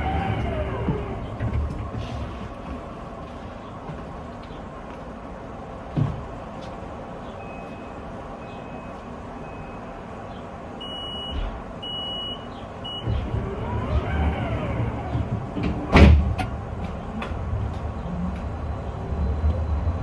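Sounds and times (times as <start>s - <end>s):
gliding motor whine: 0.0s - 1.8s, 13.0s - 16.0s
tram rolling and motor noise: 0.0s - 20.0s.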